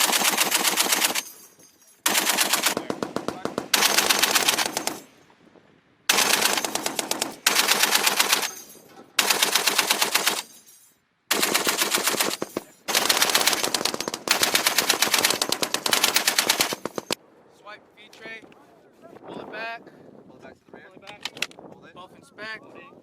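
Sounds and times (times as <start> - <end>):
heavy machine gun bursts: 0.0 - 1.4, 2.0 - 5.1, 6.1 - 10.6, 11.3 - 17.2.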